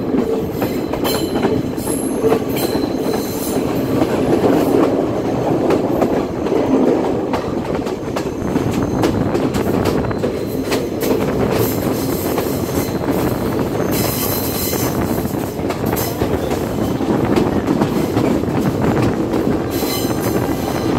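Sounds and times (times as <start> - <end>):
train wheels rumbling on rails: 0.0 - 20.9
high squeal of train wheels: 0.1 - 4.8, 8.0 - 18.4, 19.6 - 20.9
rail-joint clicks: 0.1 - 20.9.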